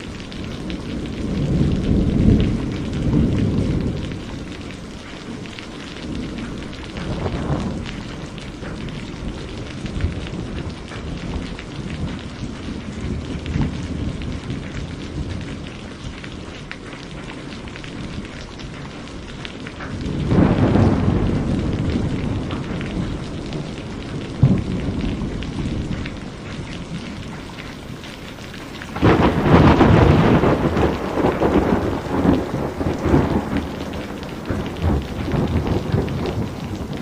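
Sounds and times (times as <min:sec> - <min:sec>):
thunder rumbling: 0:00.0 - 0:15.7, 0:19.8 - 0:37.0
steady rain: 0:00.0 - 0:37.0
sharp thunder crack: 0:20.2 - 0:26.1, 0:28.9 - 0:37.0.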